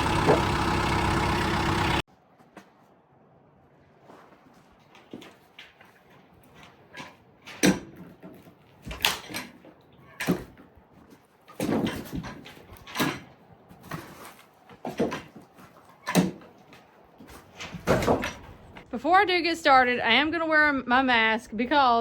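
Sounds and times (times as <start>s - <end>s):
knocks and clunks: 0.0s - 2.0s, 17.3s - 18.9s.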